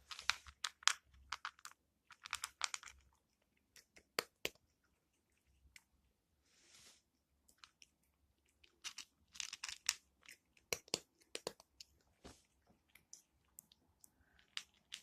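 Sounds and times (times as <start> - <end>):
cat crunching dry kibble: 0.0 - 6.0, 7.5 - 15.0.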